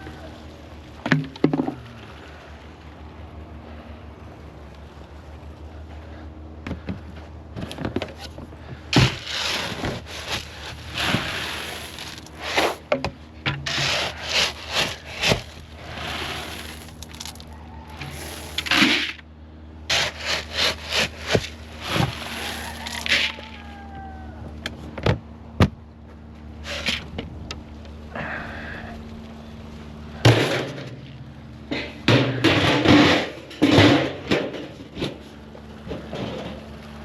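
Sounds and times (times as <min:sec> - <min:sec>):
scraping and rubbing noises: 0:09.0 - 0:12.9, 0:13.5 - 0:19.2, 0:19.9 - 0:23.7, 0:26.6 - 0:27.2.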